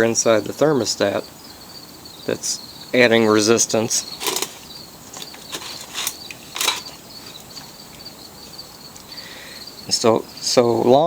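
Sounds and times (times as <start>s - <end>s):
cricket trill: 0.0s - 11.0s
carburetor linkage clicks and creaks: 4.2s - 4.6s, 5.2s - 7.0s.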